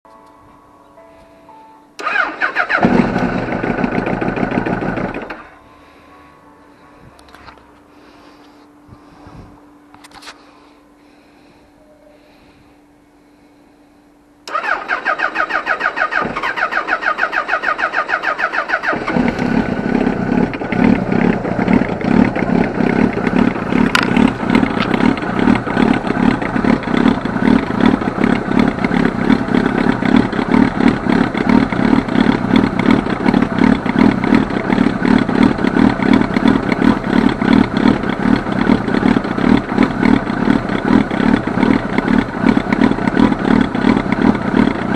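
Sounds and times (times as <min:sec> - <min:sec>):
motorcycle electric starter cranking: 0:02.0 - 0:05.6, 0:14.5 - 0:44.9
motorcycle engine idling: 0:02.0 - 0:06.2, 0:15.3 - 0:44.9.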